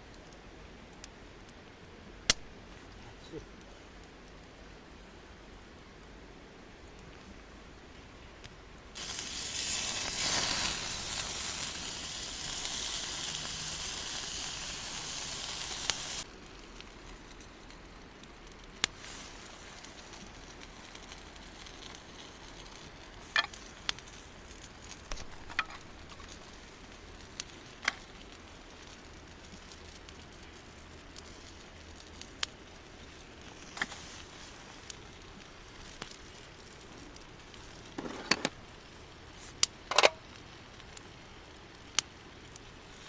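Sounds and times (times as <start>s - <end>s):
crackles and clicks: 0.0s - 43.0s
dumplings sizzling in a frying pan: 0.0s - 43.0s.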